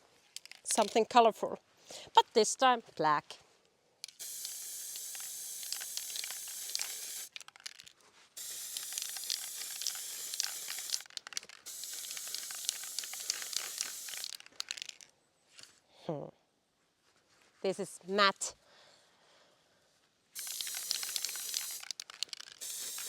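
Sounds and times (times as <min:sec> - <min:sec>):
spray paint can hissing: 0:04.2 - 0:07.8, 0:08.4 - 0:15.0, 0:20.4 - 0:23.0.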